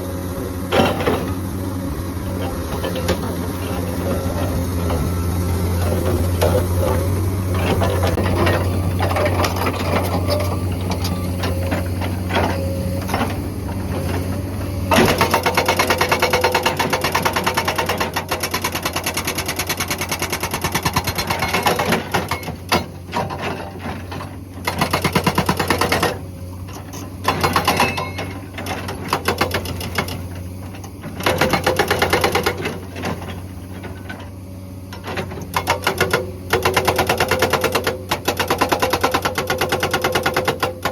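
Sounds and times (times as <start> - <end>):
excavator diesel engine running: 0.0 - 40.9
hydraulic rock breaker hammering: 14.2 - 26.2, 26.9 - 30.3, 31.1 - 34.2, 35.0 - 40.9.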